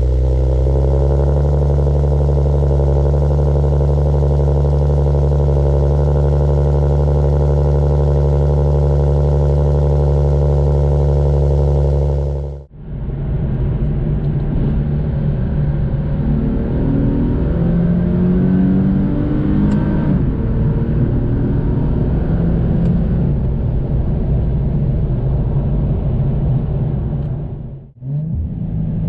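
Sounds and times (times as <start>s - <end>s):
rough exhaust revving: 0.0s - 12.7s, 27.8s - 29.0s
car engine and exhaust droning: 0.0s - 29.0s.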